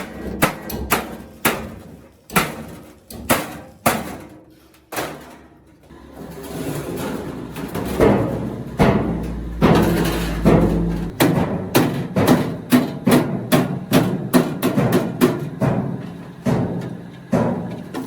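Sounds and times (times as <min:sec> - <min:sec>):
hammer striking sheet metal: 0:00.0 - 0:04.2, 0:07.7 - 0:15.9.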